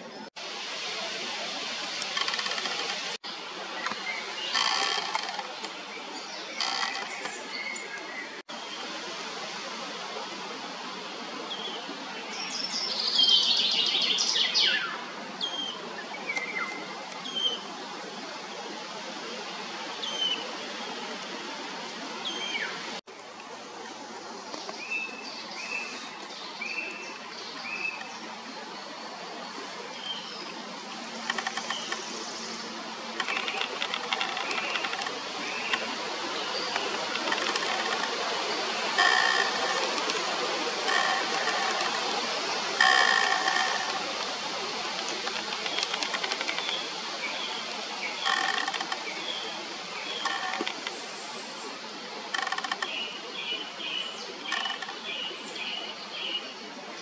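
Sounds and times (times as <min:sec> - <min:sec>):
steady background hiss: 0:00.0 - 0:57.0
birds chirping: 0:02.0 - 0:08.4, 0:24.5 - 0:51.6, 0:52.4 - 0:56.5
rapid ticking: 0:36.7 - 0:38.2, 0:39.0 - 0:44.4.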